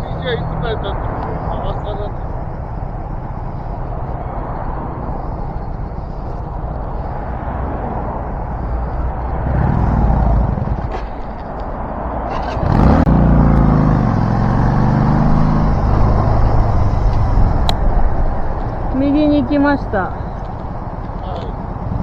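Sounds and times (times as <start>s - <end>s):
road noise: 0.0s - 22.0s
vehicle engine: 0.0s - 22.0s
engine accelerating: 12.3s - 17.8s.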